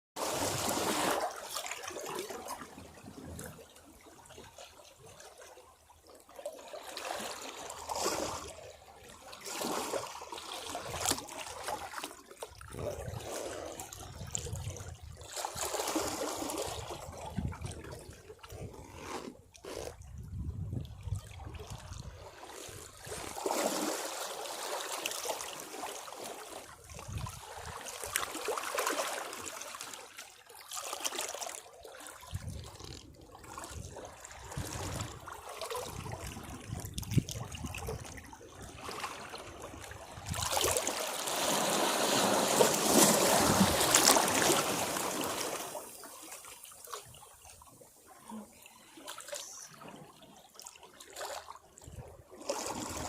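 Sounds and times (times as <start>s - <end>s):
sea waves washing against rocks: 40.2s - 46.2s.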